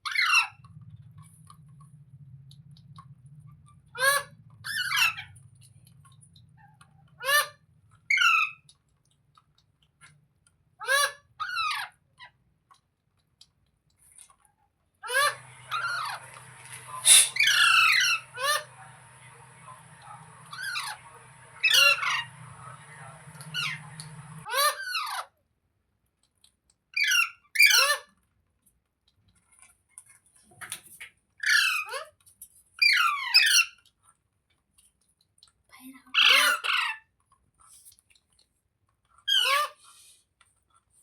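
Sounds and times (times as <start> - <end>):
low steady hum: 15.1 - 24.5
parakeet squawking: 15.1 - 24.7.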